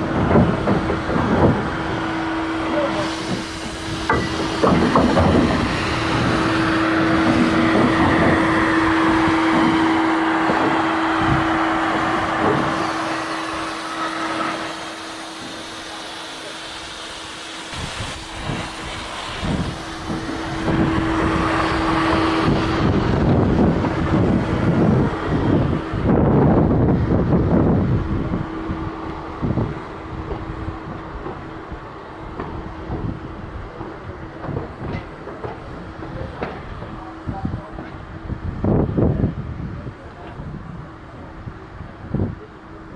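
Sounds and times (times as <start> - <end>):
locomotive steady tone: 0.0 - 42.9
hissing: 0.1 - 26.1
knocks and clanks: 2.9 - 13.1, 33.8 - 37.0.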